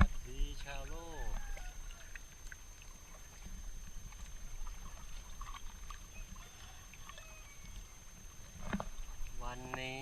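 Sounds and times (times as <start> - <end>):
faint steady high whine: 0.0 - 10.0
paddle splashes and drips: 0.0 - 10.0.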